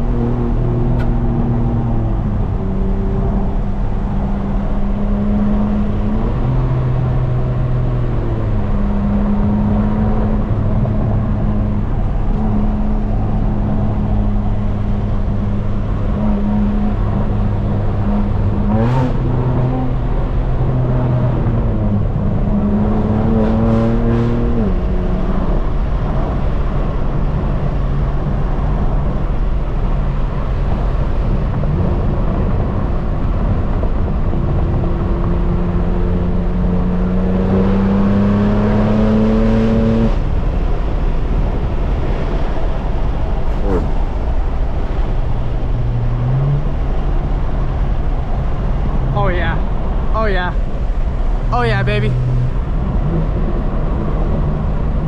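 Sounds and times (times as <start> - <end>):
car engine revving: 0.0 - 29.1, 30.4 - 55.0
steady rush of noise: 39.5 - 55.0.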